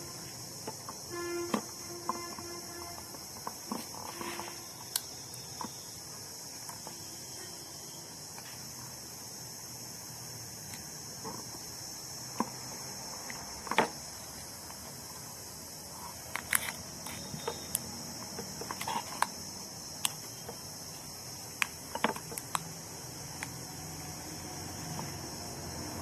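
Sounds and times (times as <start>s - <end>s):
crickets chirping: 0.0s - 26.0s
hands handling small parts: 16.0s - 19.4s.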